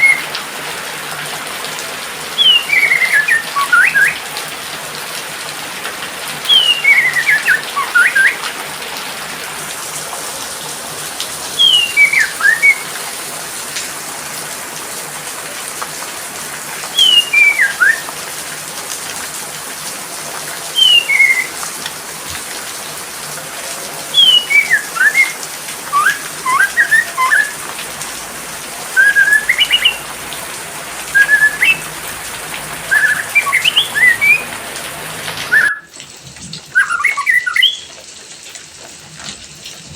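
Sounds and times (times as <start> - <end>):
songbird whistling: 0.0 - 0.3, 2.4 - 4.2, 6.5 - 8.4, 11.6 - 13.0, 16.9 - 18.1, 20.8 - 21.7, 24.1 - 27.6, 29.0 - 30.1, 31.1 - 31.9, 32.9 - 34.5, 35.4 - 35.9, 36.7 - 37.9
rain hissing: 0.0 - 39.9.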